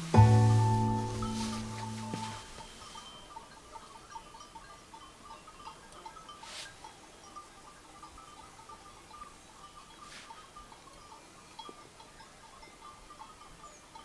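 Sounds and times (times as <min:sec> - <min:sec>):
soft swish: 0:00.0 - 0:02.7
small bells tinkling: 0:00.0 - 0:14.0.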